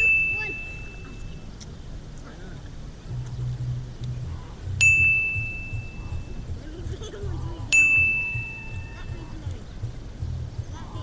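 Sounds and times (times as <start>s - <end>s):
bright metallic dings: 0.0s - 1.5s, 4.8s - 6.3s, 7.7s - 9.2s
steady low rumble: 0.0s - 11.0s.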